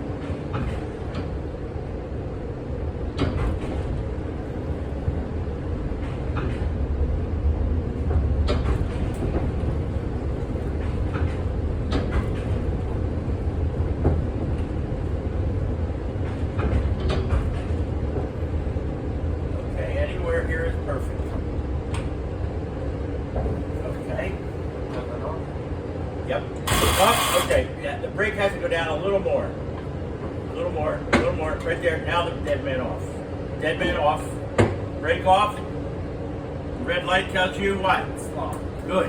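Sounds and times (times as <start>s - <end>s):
streetcar low rumble: 0.0s - 39.0s
clicks and knocks from track: 0.2s - 1.4s, 3.1s - 4.0s, 6.0s - 6.8s, 8.0s - 9.9s, 10.6s - 12.8s, 16.2s - 18.3s.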